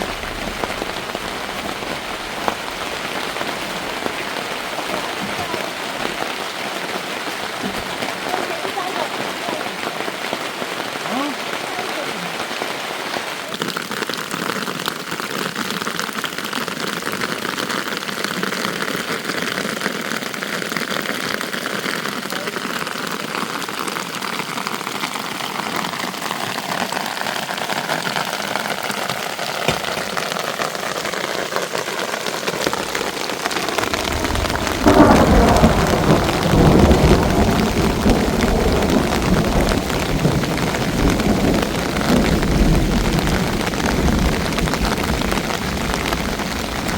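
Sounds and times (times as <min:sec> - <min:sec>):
thunder rumble: 0:00.0 - 0:11.0, 0:32.6 - 0:46.9
rain falling: 0:00.0 - 0:46.9.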